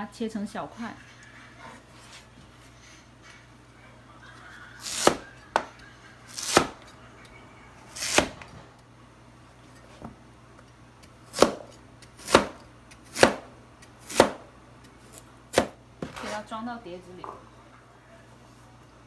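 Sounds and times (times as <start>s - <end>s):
knife cutting on cutting board: 4.8s - 7.0s, 7.9s - 8.6s, 11.0s - 16.5s.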